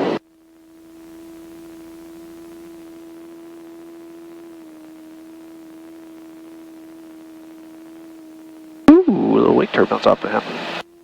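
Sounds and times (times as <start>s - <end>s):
intercom hum: 0.0s - 0.2s, 8.9s - 10.8s.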